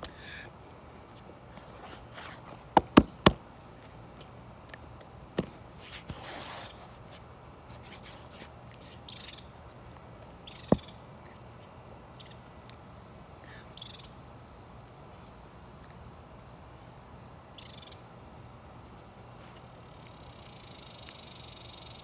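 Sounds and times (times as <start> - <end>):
sharp knocks: 2.8 - 3.4
faint chirps: 19.9 - 22.0.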